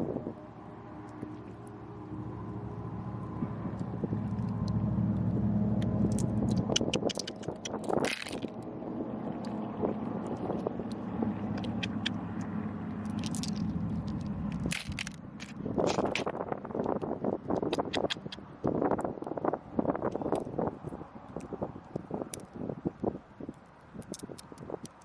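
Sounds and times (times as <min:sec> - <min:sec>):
motor engine running: 0:01.2 - 0:08.5
sharp clicks and scrapes: 0:05.8 - 0:08.6, 0:11.5 - 0:18.4, 0:21.4 - 0:23.1, 0:24.0 - 0:25.0.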